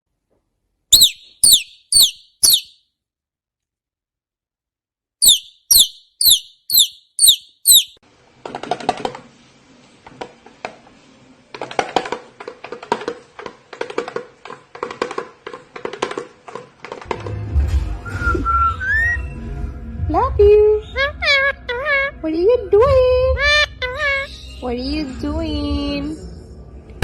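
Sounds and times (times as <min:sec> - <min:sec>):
parrot chirping: 0:00.9 - 0:02.8, 0:05.2 - 0:08.0.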